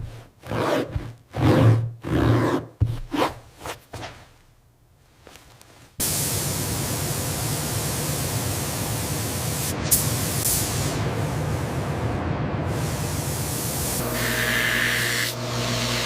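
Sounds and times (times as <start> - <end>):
high-pressure spray hissing: 6.0 - 11.1.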